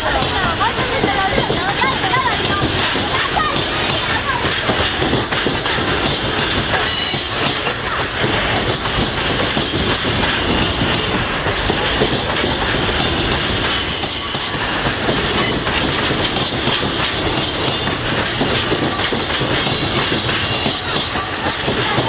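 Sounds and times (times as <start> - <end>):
freight train rumbling past: 0.0 - 22.0
train wheel squeal: 0.0 - 22.0.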